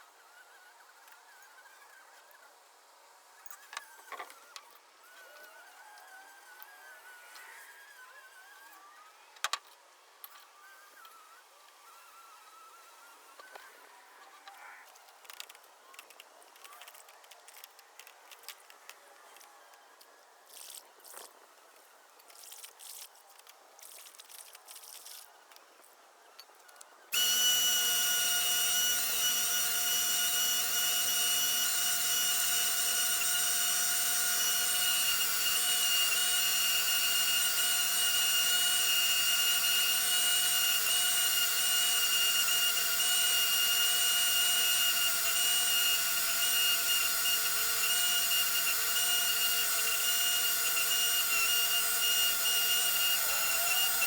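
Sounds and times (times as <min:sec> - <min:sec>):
electric power tool whining: 0:27.1 - 0:54.0.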